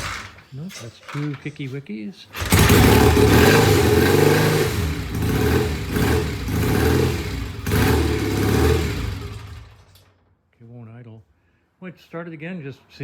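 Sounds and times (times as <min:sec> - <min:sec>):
motorcycle engine revving unevenly: 0:02.4 - 0:10.0.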